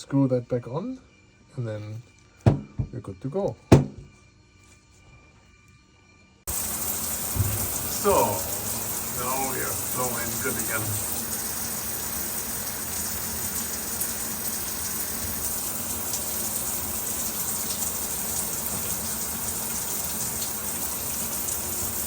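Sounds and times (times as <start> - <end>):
water spraying from shower head: 6.5 - 22.0.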